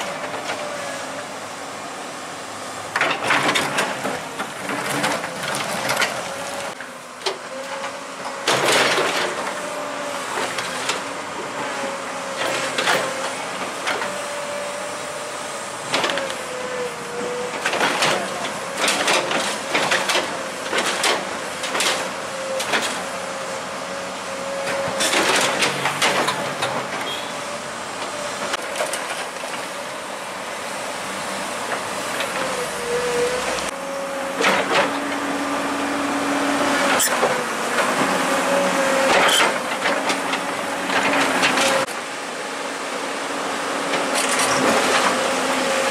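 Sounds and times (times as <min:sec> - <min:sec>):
heavy machinery whining: 0:00.0 - 0:45.9
machinery clanks and rattles: 0:02.9 - 0:09.7, 0:17.5 - 0:23.1, 0:24.6 - 0:27.2, 0:28.0 - 0:29.8, 0:34.4 - 0:35.2, 0:39.0 - 0:42.0.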